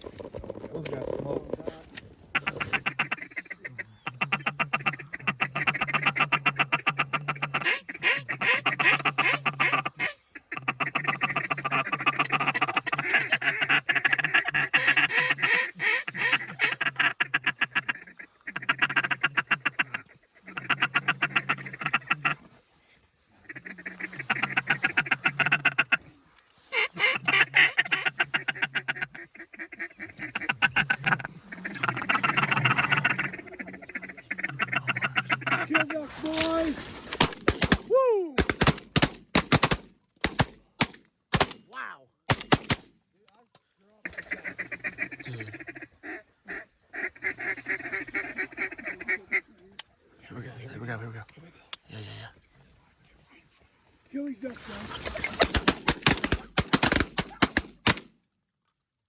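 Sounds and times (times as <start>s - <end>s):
rapid chattering duck quacks: 2.3s - 22.4s, 23.4s - 26.1s, 26.7s - 36.7s, 44.0s - 49.5s.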